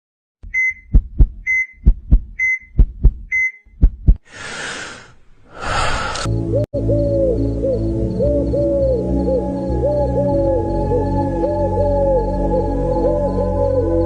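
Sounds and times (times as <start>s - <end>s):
short heart monitor beep: 0.4s - 3.8s
heartbeat thumps: 0.4s - 4.3s
music: 6.3s - 14.0s.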